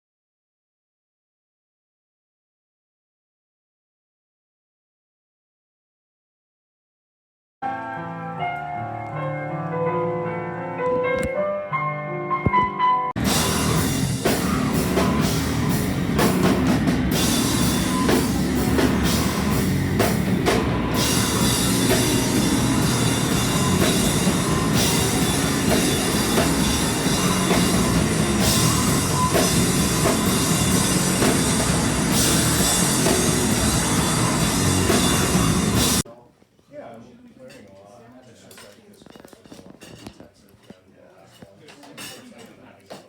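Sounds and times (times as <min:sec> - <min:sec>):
distorted noise-punk band: 0:13.2 - 0:36.0.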